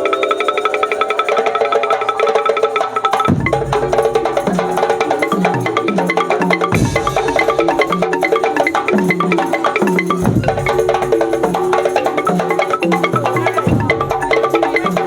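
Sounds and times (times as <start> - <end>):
pitched mallet notes: 0.0 - 15.0.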